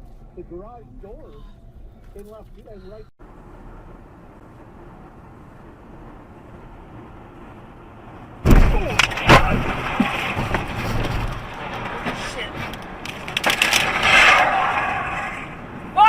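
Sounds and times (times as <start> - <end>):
car road noise: 0.0 - 16.0
sharp cracks: 8.4 - 15.7
loud vehicle collision: 8.4 - 16.0.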